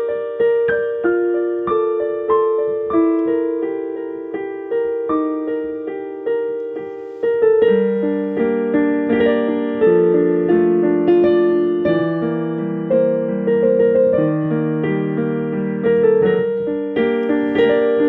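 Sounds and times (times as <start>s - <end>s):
slow solo piano: 0.0s - 18.0s.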